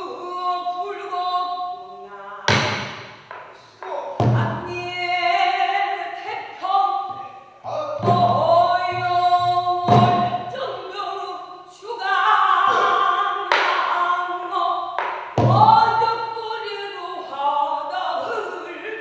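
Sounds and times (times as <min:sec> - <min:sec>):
person singing long notes: 0:03.8 - 0:14.7
barrel drum strokes: 0:08.0 - 0:10.6.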